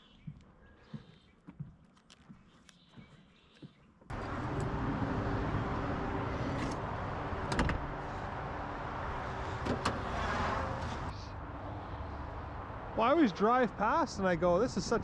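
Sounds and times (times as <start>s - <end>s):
vehicle engine and road noise: 4.1s - 15.0s.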